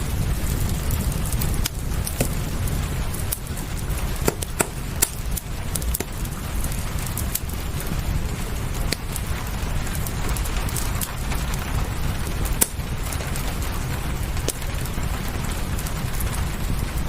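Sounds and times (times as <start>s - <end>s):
steady rain: 0.0s - 17.0s
wood fire crackling: 0.0s - 17.0s.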